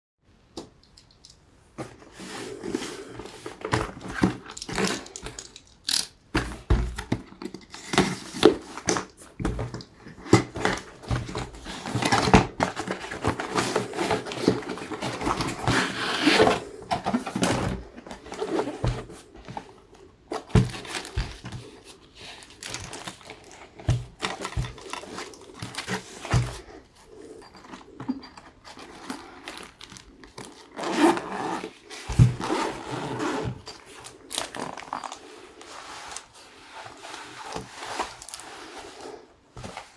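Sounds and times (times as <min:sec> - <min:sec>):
packaging rustling: 0:01.8 - 0:39.9.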